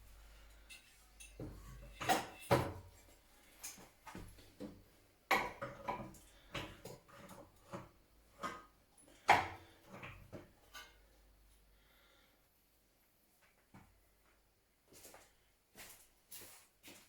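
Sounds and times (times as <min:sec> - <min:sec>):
metal tools clinking and knocking: 0:00.4 - 0:03.8.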